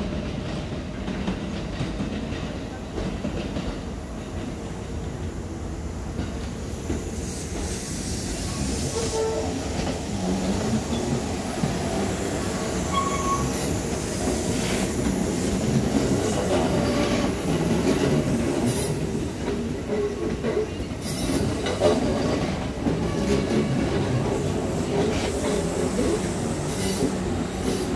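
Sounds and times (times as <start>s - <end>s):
train wheels rumbling on rails: 0.0s - 27.9s
sharp high-pitched wheel squeals: 12.8s - 13.7s.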